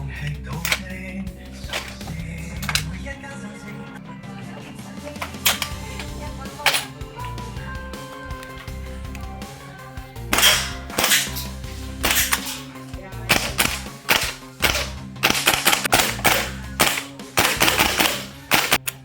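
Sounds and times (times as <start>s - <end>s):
background music: 0.0s - 19.0s
airsoft rifle firing: 5.2s - 7.4s, 10.2s - 19.0s.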